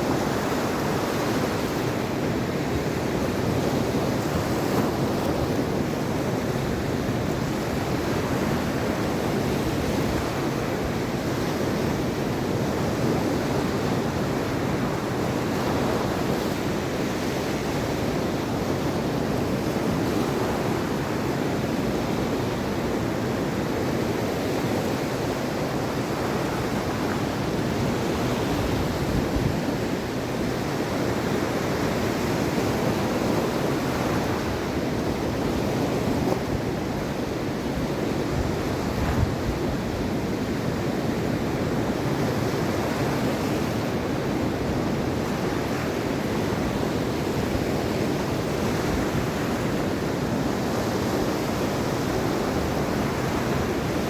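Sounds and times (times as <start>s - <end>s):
waves breaking on shore: 0.0s - 54.0s
wind on microphone: 0.0s - 54.0s.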